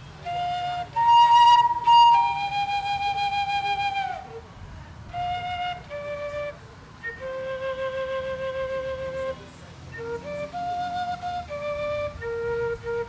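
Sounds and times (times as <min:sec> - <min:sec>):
slow flute melody: 0:00.0 - 0:13.0.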